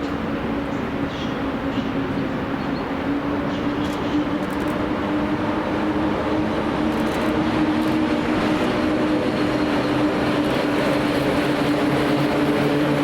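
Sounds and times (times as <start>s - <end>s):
electric train running: 3.8s - 13.0s.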